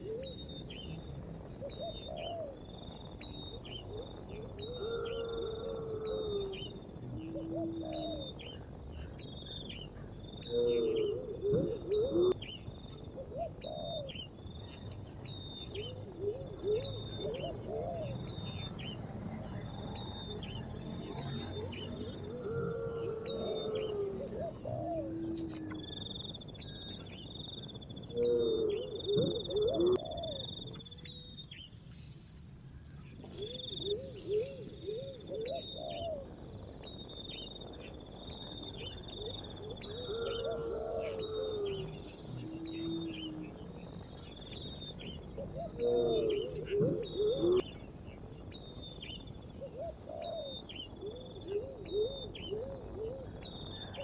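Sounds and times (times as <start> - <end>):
bird cooing: 0.0 - 0.9, 1.6 - 2.6, 3.6 - 8.6, 10.4 - 12.4, 13.1 - 14.3, 15.7 - 18.7, 20.5 - 26.0, 28.0 - 31.2, 33.2 - 36.3, 38.8 - 43.5, 45.0 - 47.7, 49.6 - 54.0
insect-like hiss: 0.0 - 54.0.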